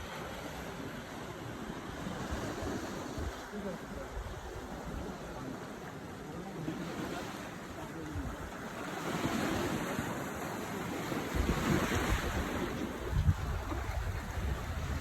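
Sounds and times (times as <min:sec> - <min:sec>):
sea waves: 0:00.0 - 0:15.0
wind gusting on microphone: 0:08.2 - 0:15.0.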